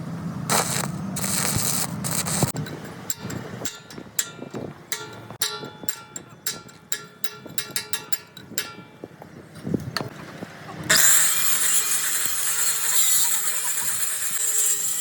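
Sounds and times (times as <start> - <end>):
power tool grinding: 0.5 - 2.6, 10.9 - 15.0.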